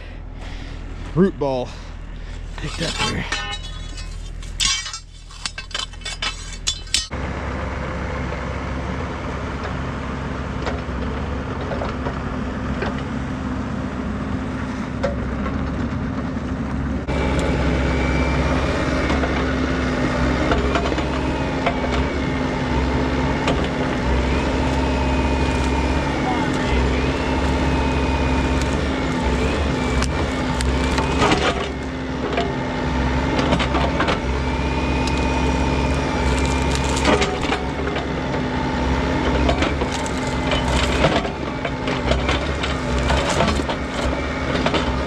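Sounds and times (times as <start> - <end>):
excavator diesel engine running: 0.0 - 45.0
high machine whine: 17.1 - 45.0.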